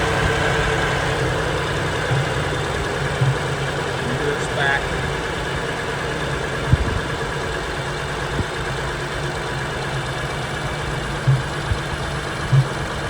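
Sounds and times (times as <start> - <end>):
car engine idling: 0.0 - 13.0
low gurgling pops: 2.0 - 4.1, 11.2 - 13.0.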